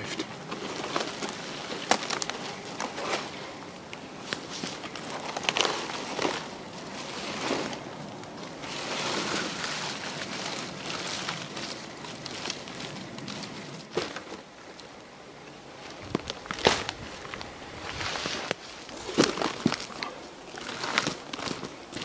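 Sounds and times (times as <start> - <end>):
bark rustling and scraping: 4.2 - 14.5.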